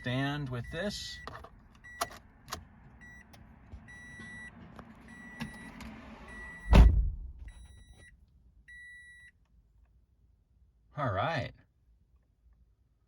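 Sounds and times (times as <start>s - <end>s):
warning chime beeping: 0.0s - 2.0s
heavy thump: 6.6s - 7.5s.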